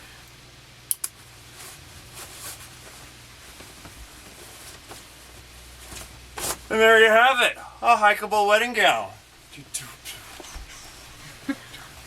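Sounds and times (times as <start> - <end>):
low steady hum: 0.0 - 12.0
sharp clicks: 0.9 - 1.2
fabric rustling: 1.2 - 7.2.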